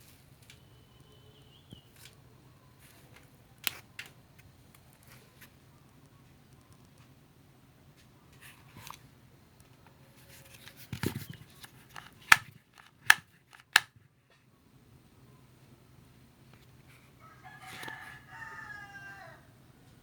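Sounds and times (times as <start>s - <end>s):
sharp clicks: 11.6s - 13.9s.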